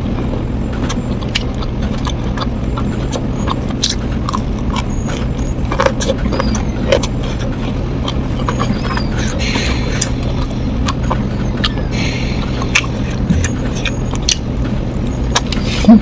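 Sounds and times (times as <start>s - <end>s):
crunching fried food: 0.0s - 15.7s
steady low hum: 0.0s - 16.0s
wet mouth clicks and smacks: 1.2s - 7.5s, 12.4s - 14.5s.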